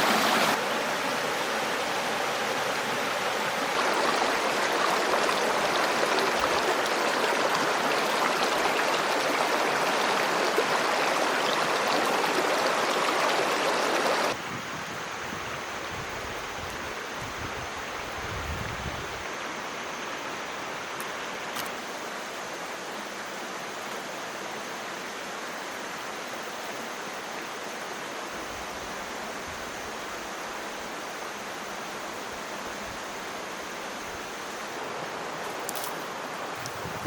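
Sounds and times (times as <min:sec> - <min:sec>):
running water rushing: 0:00.0 - 0:14.4, 0:33.0 - 0:37.0.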